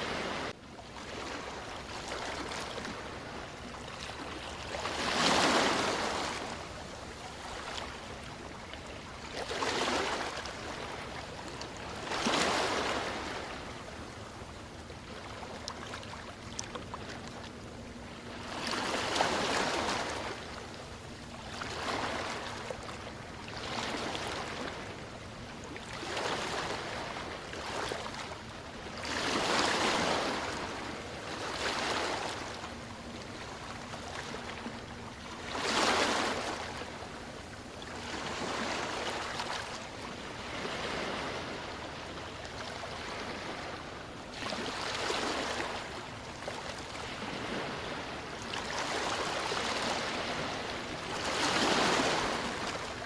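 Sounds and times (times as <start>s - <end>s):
waves washing in: 0.0s - 53.0s.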